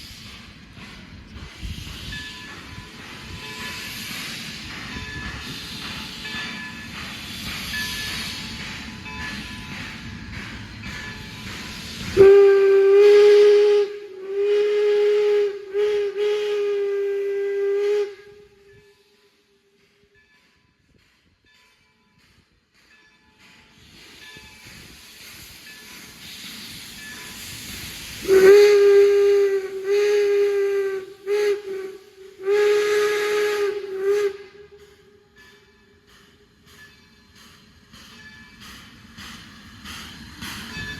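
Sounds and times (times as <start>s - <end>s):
steam hissing: 0.0s - 21.3s, 22.2s - 40.9s
steam locomotive whistle: 12.1s - 19.2s, 28.2s - 35.4s.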